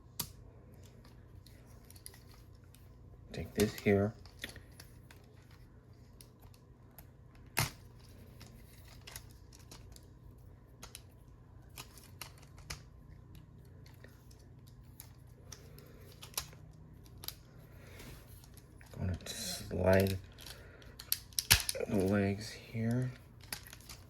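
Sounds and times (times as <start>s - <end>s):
plastic toy parts clicking: 11.7s - 17.5s, 19.8s - 22.2s, 23.4s - 24.0s
plastic toy snap: 21.1s - 21.8s.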